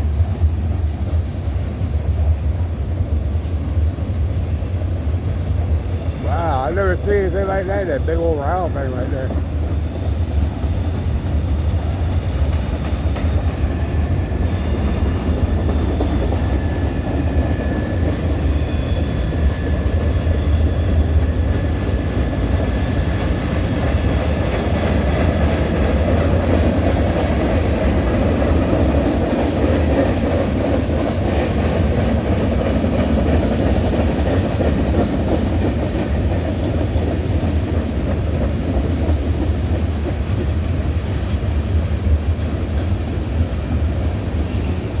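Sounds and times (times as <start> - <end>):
wheels clickety-clack: 0.0 - 4.5, 9.3 - 45.0
train wheels rumbling on rails: 0.0 - 45.0
high wheel squeals: 4.3 - 21.2.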